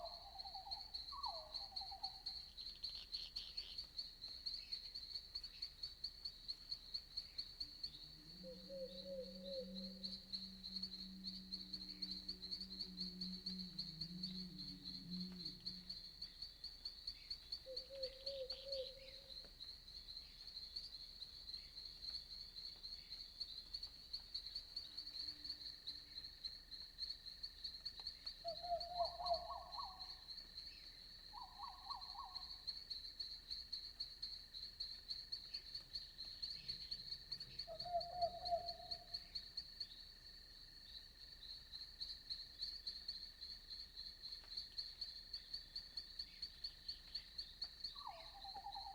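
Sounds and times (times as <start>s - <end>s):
crickets trilling: 0.0s - 48.9s
frogs calling: 37.6s - 39.2s, 48.0s - 48.9s.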